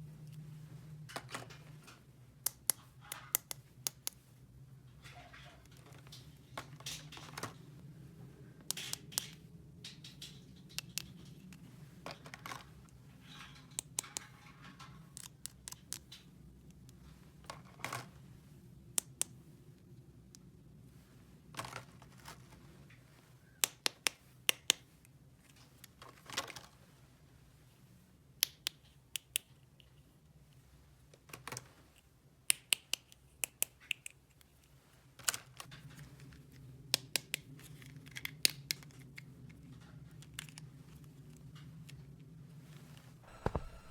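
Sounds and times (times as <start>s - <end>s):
plastic pieces clicking and tapping: 15.1s - 16.3s
steady low hum: 43.2s - 43.9s.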